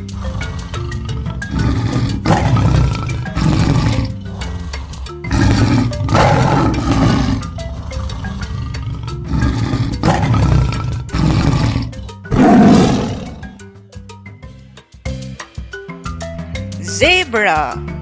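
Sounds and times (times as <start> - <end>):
tiger roaring and growling: 0.0 - 13.6
background music: 0.0 - 18.0.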